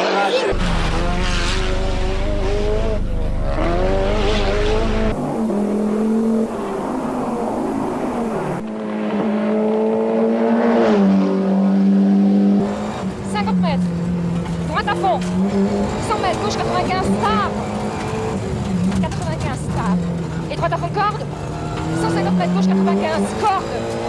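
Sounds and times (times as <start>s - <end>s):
rally car engines at full throttle: 0.0s - 24.0s.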